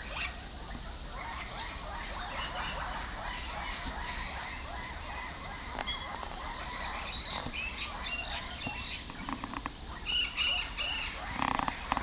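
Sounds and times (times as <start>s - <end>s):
outdoor background: 0.0s - 12.0s
bird chirps and whistles: 10.0s - 11.2s.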